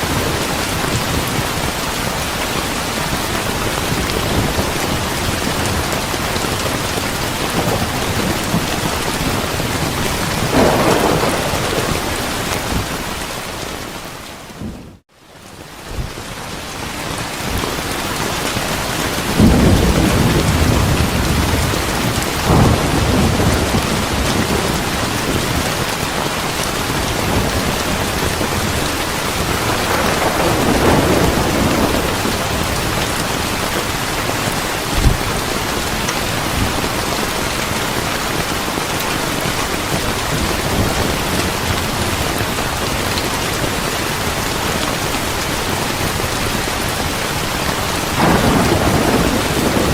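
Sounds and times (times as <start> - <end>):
heavy rain: 0.0 - 49.9
rolling thunder: 3.4 - 13.9, 18.6 - 37.4, 48.1 - 49.9.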